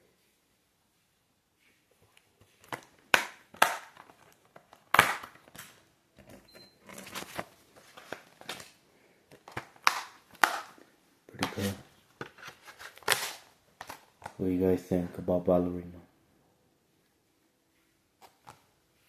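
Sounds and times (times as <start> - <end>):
plastic crinkling and rustling: 1.6 - 14.4
plastic case clicking and snapping: 2.6 - 6.4.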